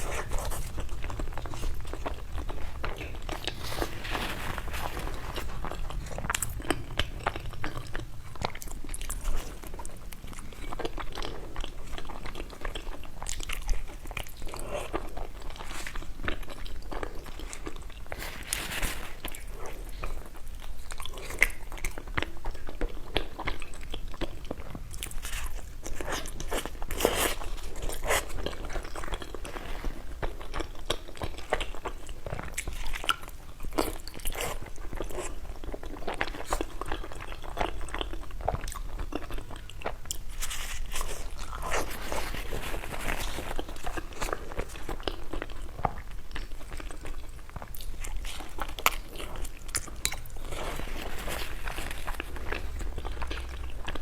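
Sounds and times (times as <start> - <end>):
small crunches: 0.0 - 11.4, 13.3 - 20.1, 39.9 - 54.0
person chewing food: 0.0 - 54.0.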